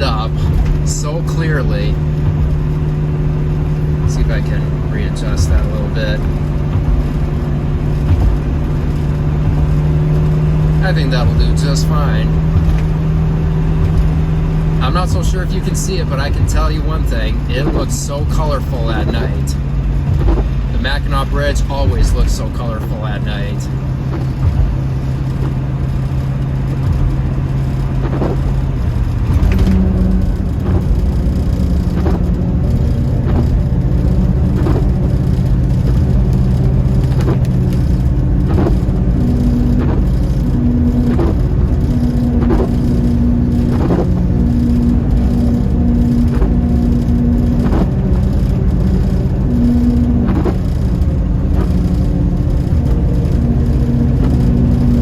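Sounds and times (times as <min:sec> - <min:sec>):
car engine drone: 0:00.0 - 0:55.0.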